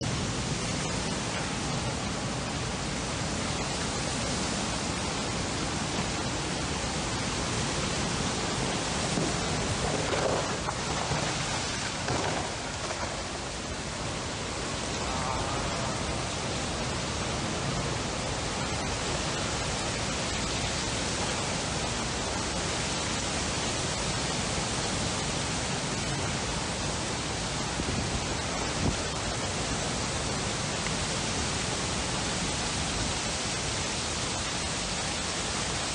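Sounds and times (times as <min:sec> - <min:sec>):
strong wind blowing: 0:00.0 - 0:22.4.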